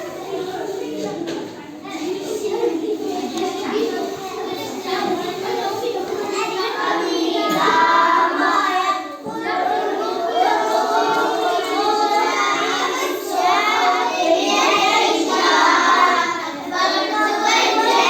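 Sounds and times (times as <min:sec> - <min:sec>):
children singing: 0:04.4 - 0:18.0.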